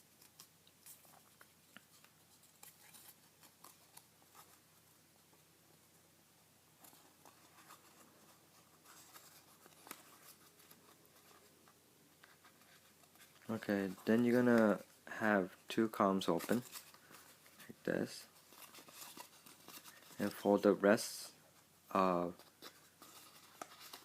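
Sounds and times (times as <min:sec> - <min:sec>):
paper rustling and crinkling: 0:06.8 - 0:20.6, 0:22.3 - 0:24.0.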